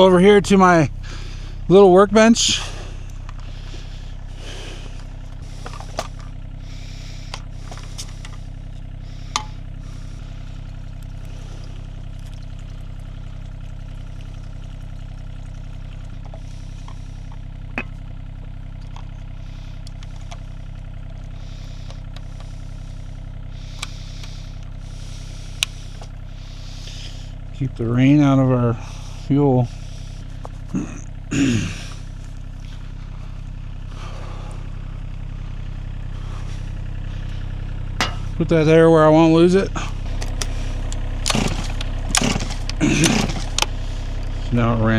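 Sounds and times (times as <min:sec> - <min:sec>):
engine idling: 0:00.0 - 0:44.9
light clinks and knocks: 0:40.1 - 0:43.8.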